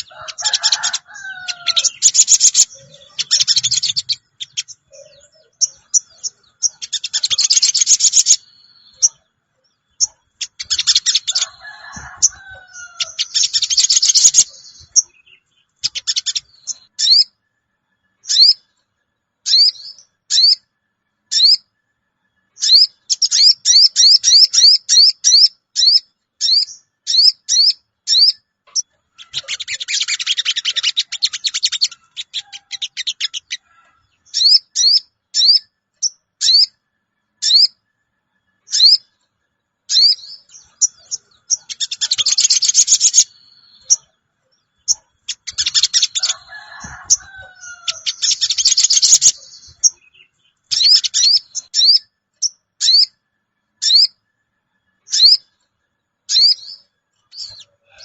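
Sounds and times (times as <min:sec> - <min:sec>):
fast chattering bird trills: 0:00.0 - 0:08.4, 0:10.0 - 0:17.2, 0:22.6 - 0:33.6, 0:39.9 - 0:44.1, 0:44.8 - 0:50.1, 0:50.7 - 0:52.0
sharp bird chirps: 0:00.0 - 0:17.4, 0:22.5 - 0:36.8, 0:39.9 - 0:53.2, 0:53.8 - 0:54.2, 0:55.0 - 0:55.6, 0:56.2 - 0:58.0.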